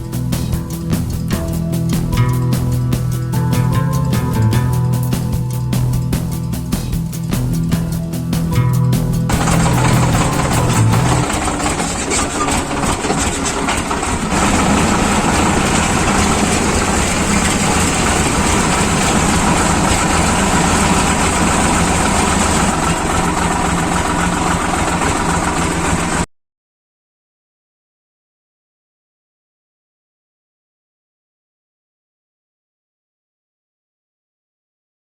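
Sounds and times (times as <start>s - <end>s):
tractor engine running: 0.0s - 26.3s.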